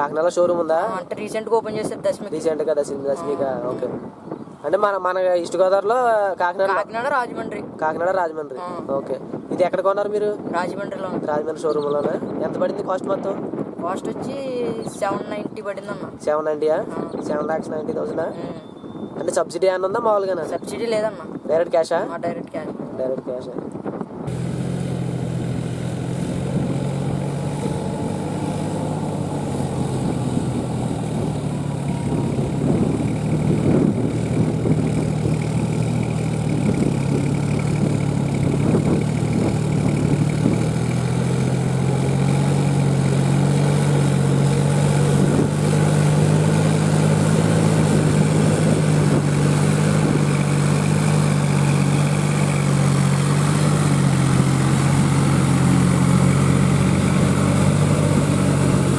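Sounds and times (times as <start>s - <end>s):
tractor diesel engine running: 24.3s - 58.9s.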